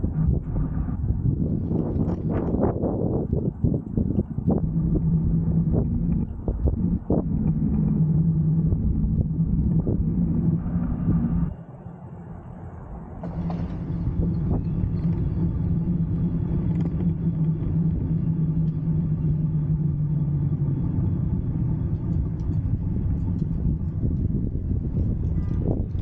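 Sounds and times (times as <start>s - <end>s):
diesel train rumble: 0.0s - 26.0s
low engine hum: 0.0s - 26.0s.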